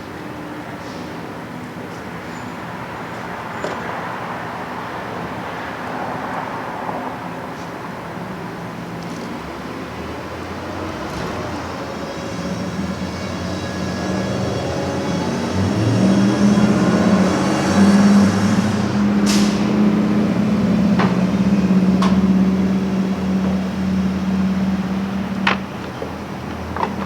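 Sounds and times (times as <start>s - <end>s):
motor humming: 10.9s - 27.0s.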